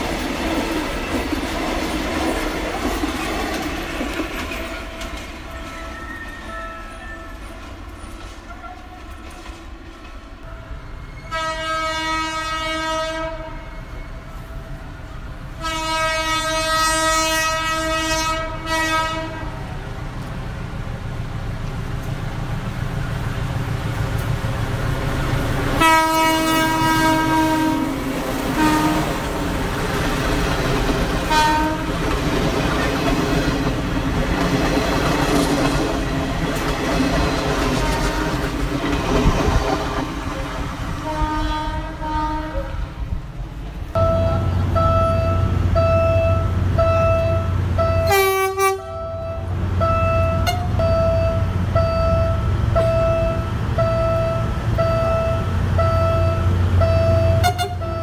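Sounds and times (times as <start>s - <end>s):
train rumbling past: 0.0s - 58.0s
diesel train horn blasts: 11.1s - 14.8s, 15.5s - 19.8s, 25.7s - 29.4s, 31.2s - 32.0s, 37.6s - 38.6s, 40.9s - 43.1s, 43.9s - 58.0s.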